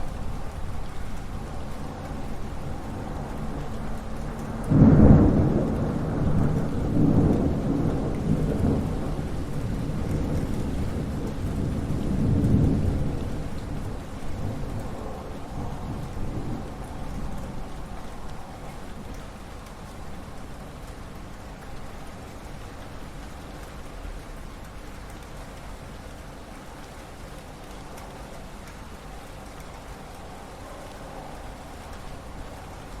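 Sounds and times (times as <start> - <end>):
thunder clap and rumble: 0.0 - 20.9
steady rain: 0.0 - 33.0.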